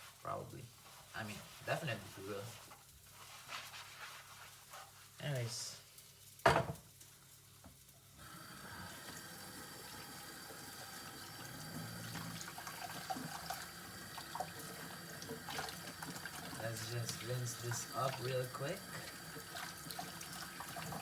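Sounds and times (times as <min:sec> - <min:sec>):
tap water running into sink: 0:08.2 - 0:21.0.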